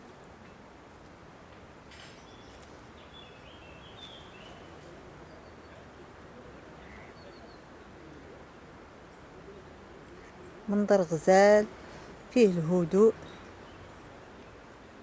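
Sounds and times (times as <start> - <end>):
outdoor background noise: 0.0 - 15.0
small birds chirping: 2.1 - 5.9, 9.1 - 14.6.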